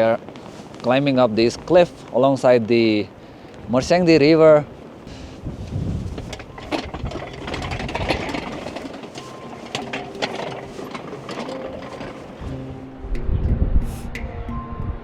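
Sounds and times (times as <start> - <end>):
knocks and rattles: 5.7 - 12.6.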